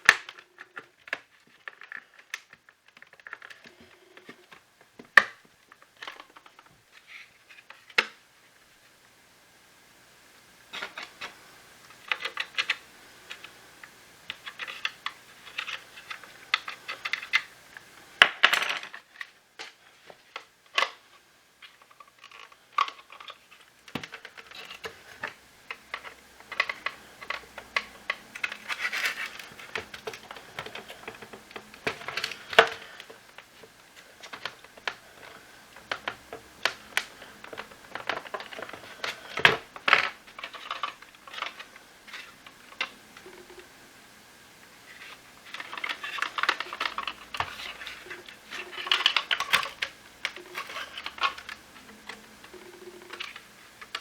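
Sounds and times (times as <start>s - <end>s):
plastic parts clicking and rattling: 0.0s - 8.2s, 10.7s - 43.6s, 44.9s - 54.0s.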